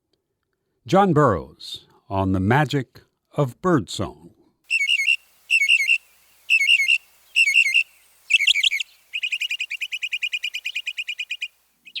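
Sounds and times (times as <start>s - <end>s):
mockingbird singing: 4.7s - 12.0s.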